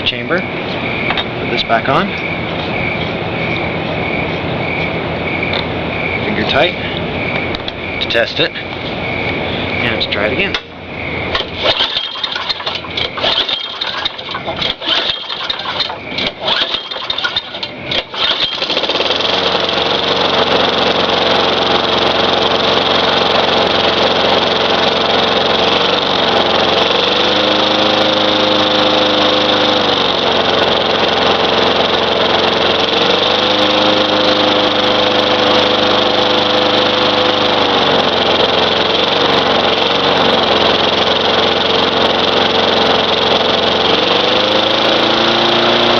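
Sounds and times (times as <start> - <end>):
lawn mower engine pull-starting: 11.3 - 45.9.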